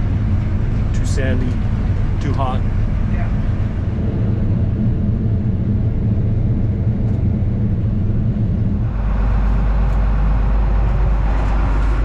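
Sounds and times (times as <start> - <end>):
combine harvester droning: 0.0 - 12.0.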